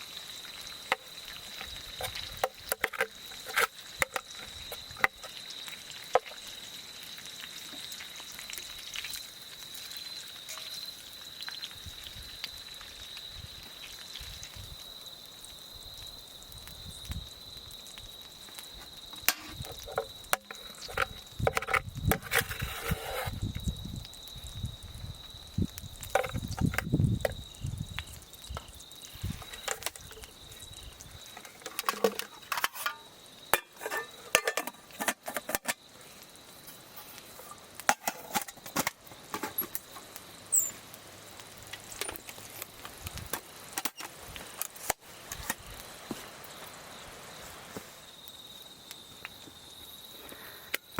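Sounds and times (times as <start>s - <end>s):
high-pitched insect trill: 0.0s - 50.9s
clicks knocks and clinks: 31.4s - 35.8s.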